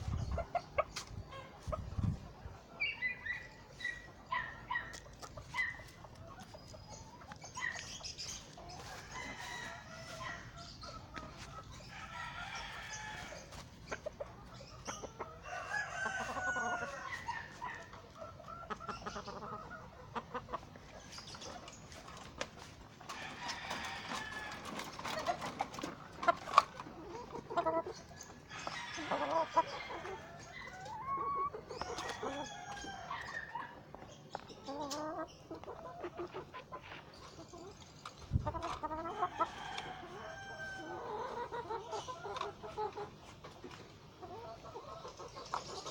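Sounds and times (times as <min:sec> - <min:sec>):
chickens clucking: 0:00.0 - 0:45.9
roosters crowing: 0:08.6 - 0:13.6, 0:15.2 - 0:17.9, 0:23.1 - 0:25.5, 0:27.2 - 0:33.9, 0:38.8 - 0:42.6.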